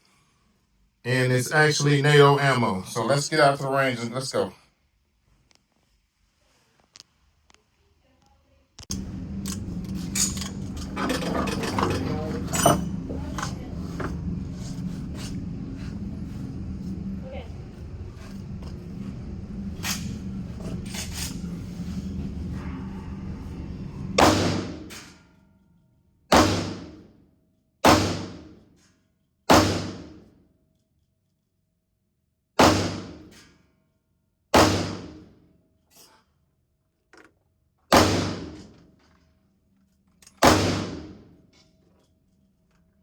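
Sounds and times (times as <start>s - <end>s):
gunshots: 24.2s - 24.9s, 26.3s - 27.0s, 27.8s - 28.6s, 29.5s - 30.2s, 32.6s - 33.3s, 34.6s - 35.3s, 37.9s - 38.7s, 40.4s - 41.2s.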